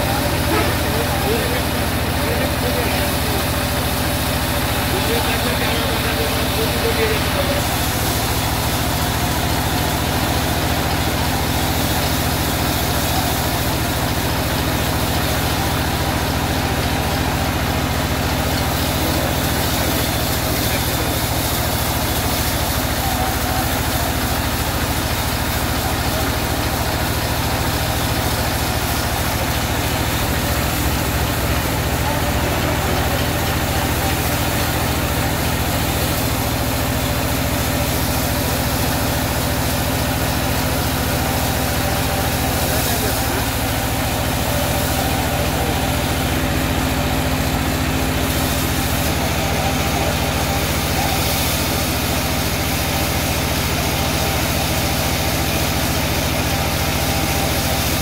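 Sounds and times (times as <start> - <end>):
sawmill engine running: 0.0 - 58.0.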